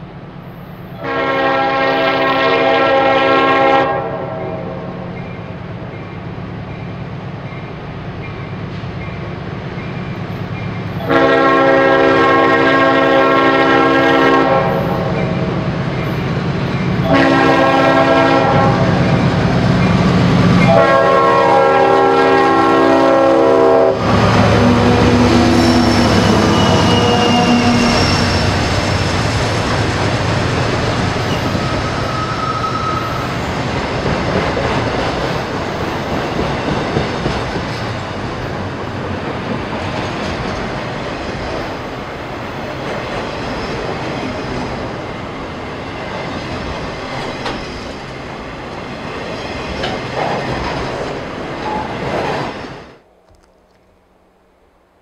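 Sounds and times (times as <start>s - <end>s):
train horn blasts: 1.0s - 5.0s, 11.0s - 15.2s, 17.0s - 19.0s, 20.6s - 28.8s
diesel locomotive engine rumble: 4.6s - 52.3s
train wheels clattering: 24.0s - 42.0s, 45.9s - 52.6s
faint wheel squeal: 25.4s - 28.7s, 31.3s - 33.4s.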